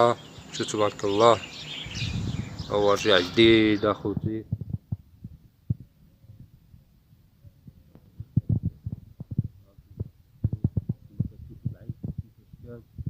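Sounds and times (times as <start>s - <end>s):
soft low thumps and knocks: 4.0s - 6.9s, 7.6s - 13.0s.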